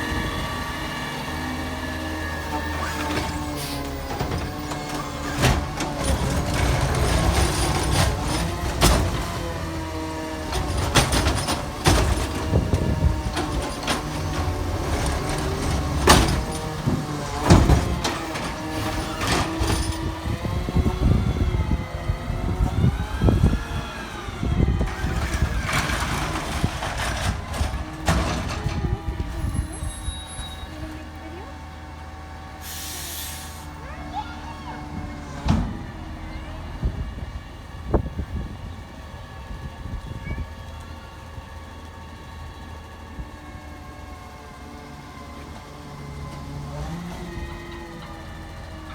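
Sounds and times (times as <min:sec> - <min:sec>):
garbage truck engine revving: 0:00.0 - 0:40.1, 0:40.8 - 0:48.9
knocks and clunks: 0:02.6 - 0:21.0, 0:24.7 - 0:29.6, 0:34.8 - 0:36.6
hiss: 0:32.6 - 0:33.7.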